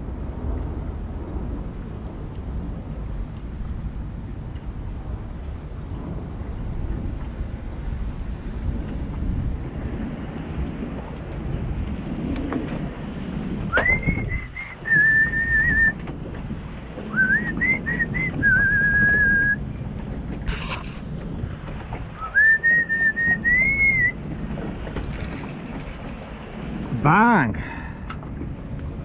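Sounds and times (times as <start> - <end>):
low rumble: 0.0 - 29.0
man whistling a tune: 13.7 - 16.0, 17.1 - 19.6, 22.2 - 24.2.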